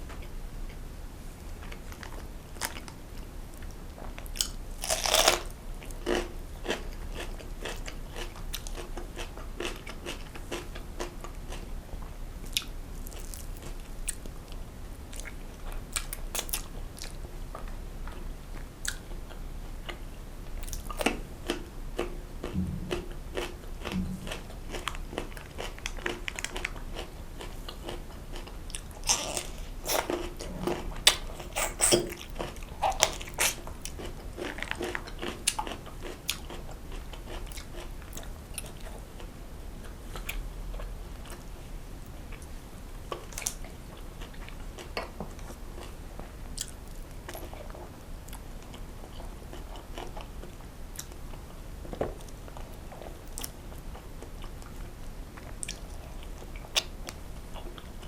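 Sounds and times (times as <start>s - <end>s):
person biting and chewing food: 4.4s - 5.5s, 20.6s - 36.5s.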